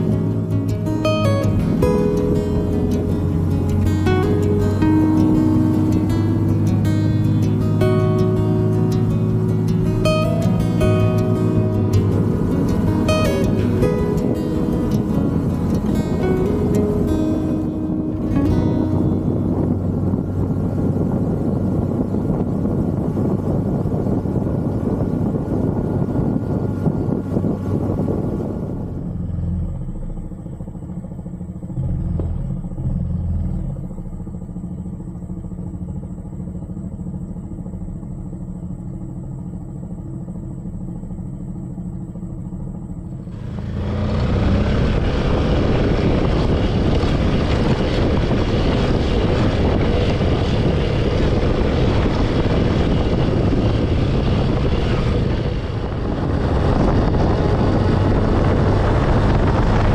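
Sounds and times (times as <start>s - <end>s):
wind rushing on microphone: 0.0s - 29.4s, 43.3s - 59.9s
motorcycle engine drone: 0.0s - 59.9s.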